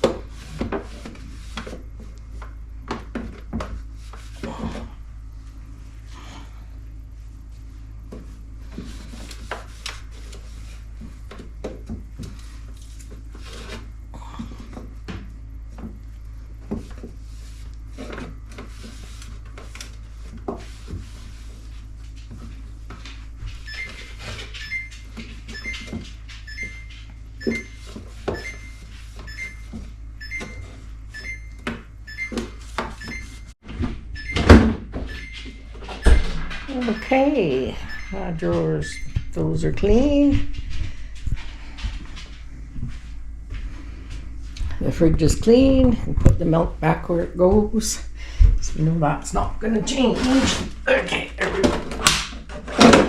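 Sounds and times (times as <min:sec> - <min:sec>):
steady low hum: 0:00.0 - 0:53.0
electronic beeps: 0:26.5 - 0:30.6, 0:35.1 - 0:39.4.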